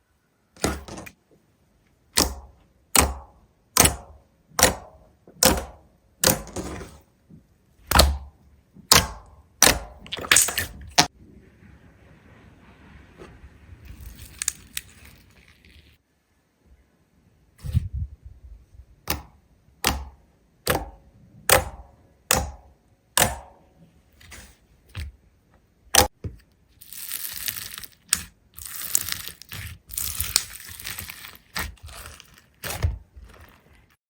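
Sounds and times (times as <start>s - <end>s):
crinkling and crunching: 13.7s - 16.0s, 26.4s - 34.0s.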